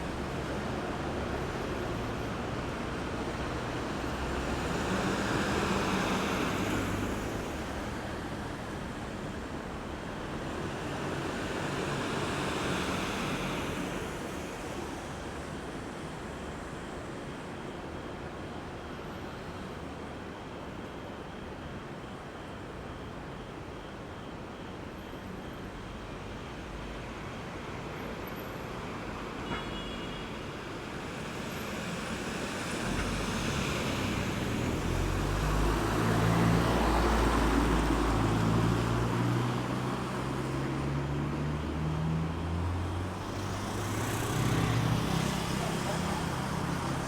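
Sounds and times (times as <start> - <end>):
traffic hum: 31.2 - 47.0.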